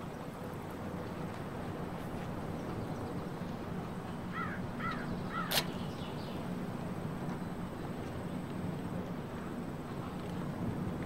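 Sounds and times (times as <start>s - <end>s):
bird calling: 4.3s - 6.2s
sharp click: 5.5s - 5.8s.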